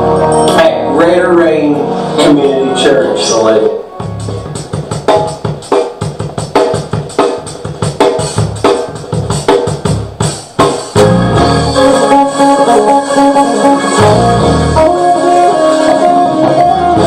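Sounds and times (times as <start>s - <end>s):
band music: 0.0s - 17.0s
held keyboard chords: 0.0s - 17.0s
strong bass: 4.0s - 5.3s, 11.0s - 17.0s
drum beat: 4.0s - 13.0s.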